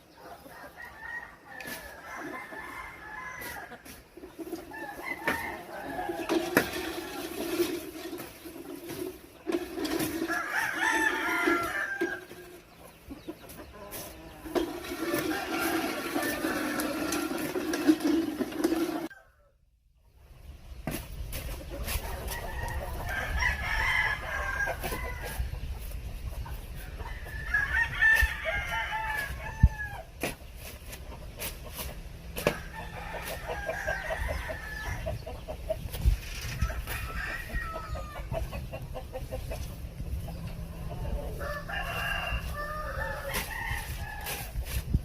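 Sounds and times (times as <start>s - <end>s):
chickens clucking: 0.0s - 19.3s, 20.0s - 45.0s
roosters crowing: 0.0s - 19.7s, 21.4s - 45.0s.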